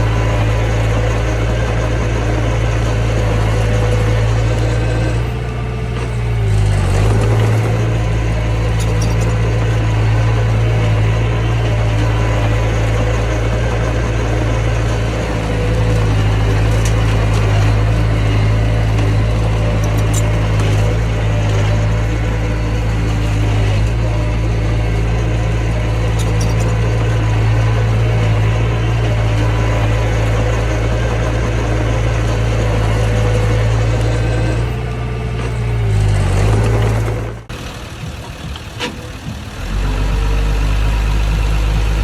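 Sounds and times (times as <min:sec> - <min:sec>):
bulldozer diesel engine running: 0:00.0 - 0:42.0.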